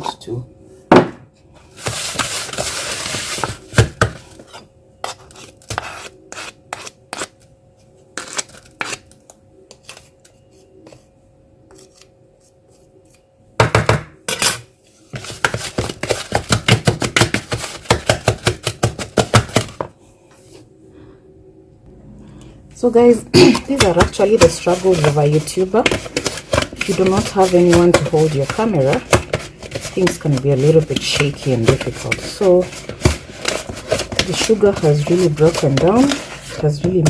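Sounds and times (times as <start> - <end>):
spoon knocking and scraping bowl: 23.6 - 37.0.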